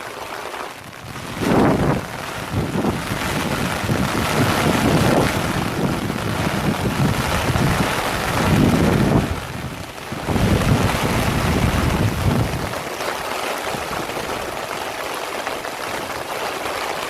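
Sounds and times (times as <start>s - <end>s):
rushing floodwater: 0.0s - 17.0s
wind buffeting microphone: 0.8s - 13.0s.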